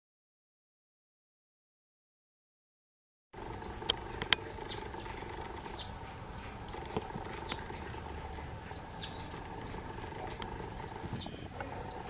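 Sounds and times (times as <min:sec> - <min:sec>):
background hum: 0:03.4 - 0:12.0
small bird chirping: 0:03.4 - 0:12.0.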